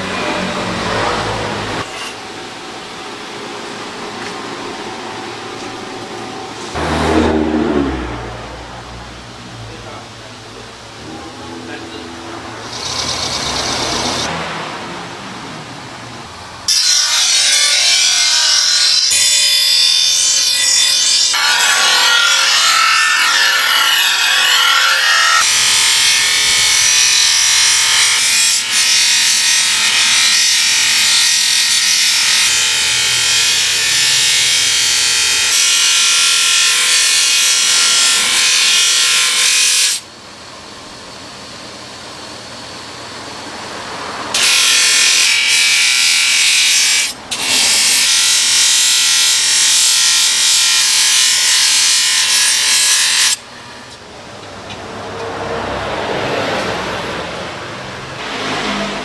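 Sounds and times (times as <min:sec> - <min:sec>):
power tool running: 0:05.3 - 0:09.8, 0:11.0 - 0:14.5, 0:16.6 - 0:40.0.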